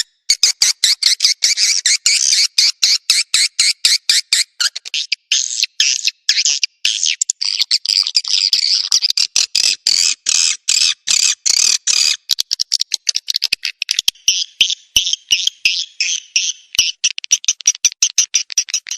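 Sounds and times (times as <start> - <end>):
sharp clicks: 11.1 - 14.3, 15.2 - 18.9.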